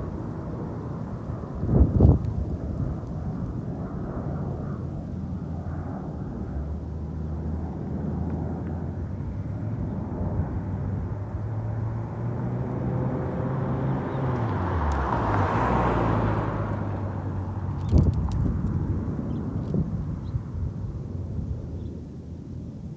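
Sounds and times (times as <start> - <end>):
car engine droning: 6.4 - 18.2.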